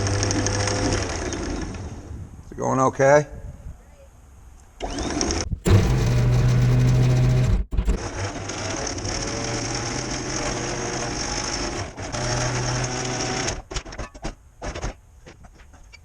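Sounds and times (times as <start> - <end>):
anchor windlass grinding: 4.8 - 14.9.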